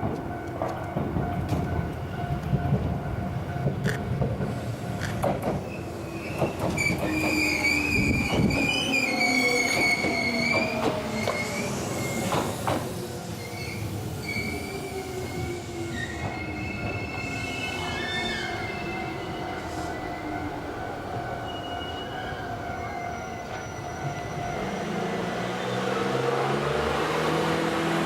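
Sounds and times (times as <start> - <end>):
rail joint clicks: 0.0 - 14.6
train rumble: 0.0 - 28.0
train wheels squealing: 5.3 - 20.6, 21.3 - 26.6.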